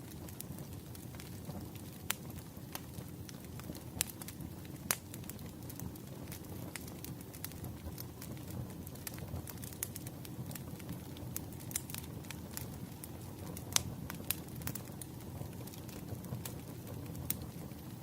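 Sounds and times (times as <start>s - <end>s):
flame rumbling: 0.0s - 18.0s
wood fire popping and snapping: 0.0s - 18.0s.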